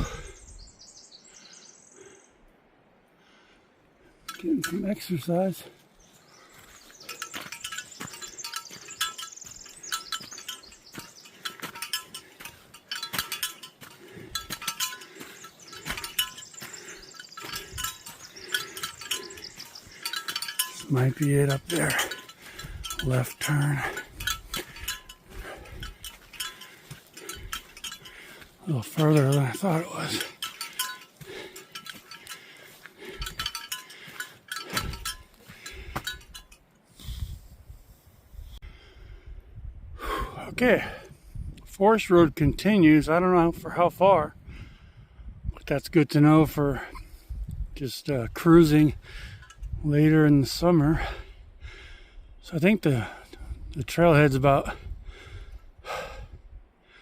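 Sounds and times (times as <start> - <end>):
bear bells jingling: 4.2 - 37.2, 48.0 - 51.4.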